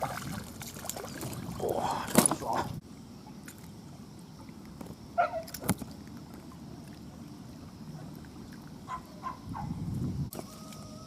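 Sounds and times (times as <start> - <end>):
choppy water lapping at shore: 0.0 - 2.8
wind: 0.0 - 11.0.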